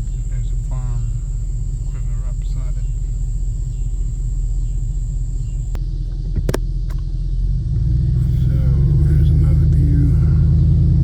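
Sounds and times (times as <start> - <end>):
sharp clicks: 0.0 - 5.8
car engine and road rumble: 0.0 - 11.0.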